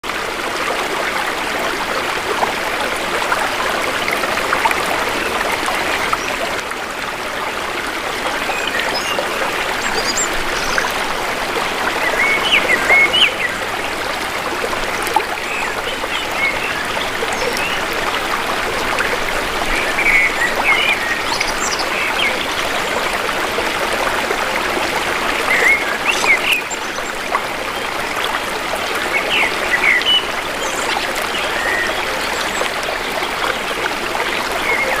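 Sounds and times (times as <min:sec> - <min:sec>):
river flowing: 0:00.0 - 0:35.0
birds chirping: 0:25.4 - 0:27.2.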